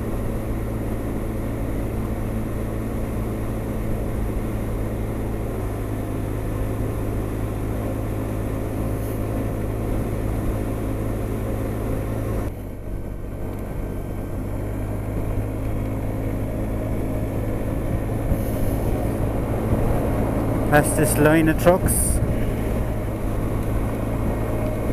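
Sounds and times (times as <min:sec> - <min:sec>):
scooter engine drone: 0:00.0 - 0:24.9
wind rush: 0:17.8 - 0:24.9.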